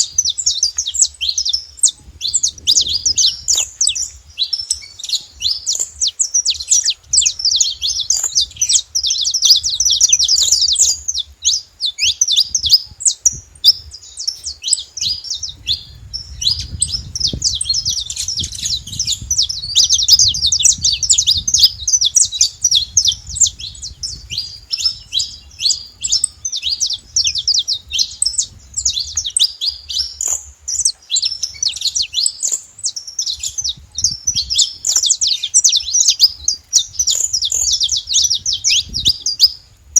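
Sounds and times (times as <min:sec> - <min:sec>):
finches chirping: 0:00.0 - 0:39.6.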